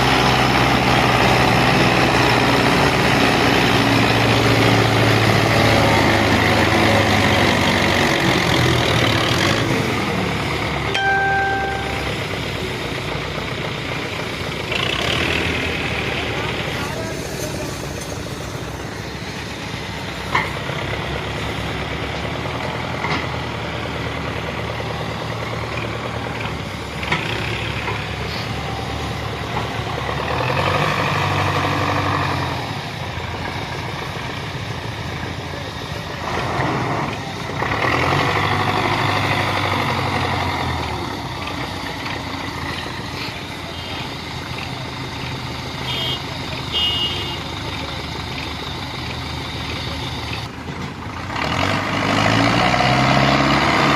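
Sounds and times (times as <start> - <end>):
diesel tractor engine revving: 0.0 - 10.9, 11.5 - 53.9
short high beeps: 10.9 - 12.2.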